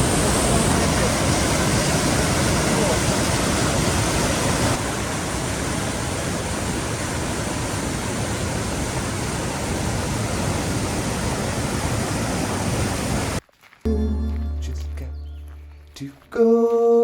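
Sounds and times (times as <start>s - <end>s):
waterfall rushing: 0.0s - 13.4s.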